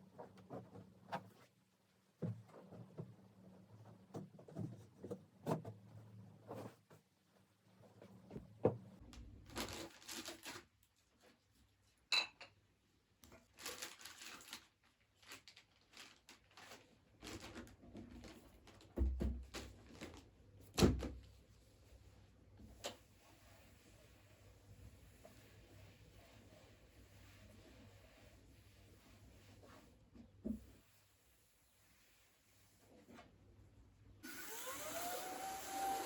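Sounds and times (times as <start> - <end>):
dishes and cutlery clinking: 12.1 - 12.6.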